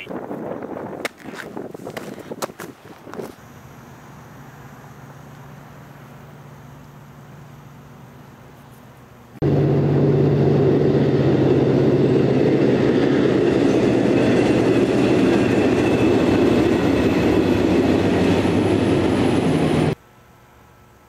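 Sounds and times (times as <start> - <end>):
low hum: 3.2 - 21.0
train rumbling and rattling: 9.4 - 20.0.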